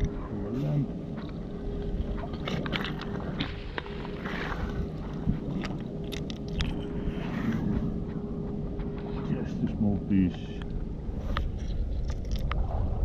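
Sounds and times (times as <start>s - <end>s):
faint hum: 0.0s - 13.0s
low rumble: 0.0s - 13.0s
stones crunching and scraping: 1.1s - 7.7s.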